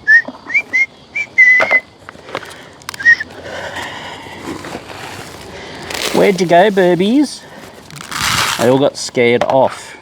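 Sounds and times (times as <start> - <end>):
short whistled notes: 0.0 - 1.9, 3.0 - 3.3.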